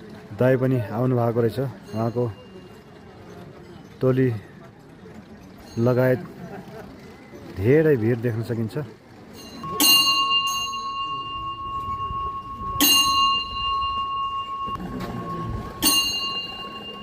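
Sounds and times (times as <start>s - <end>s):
murmur of voices: 0.0s - 17.0s
metal bell ringing: 9.4s - 17.0s.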